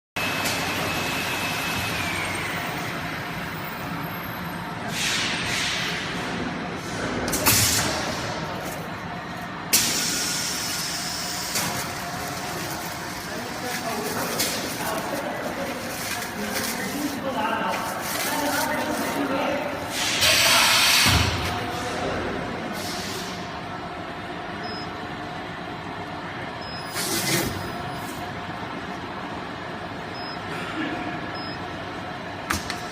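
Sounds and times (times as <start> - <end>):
machine humming and whining: 0.2 - 32.9
short air hisses: 4.9 - 5.9.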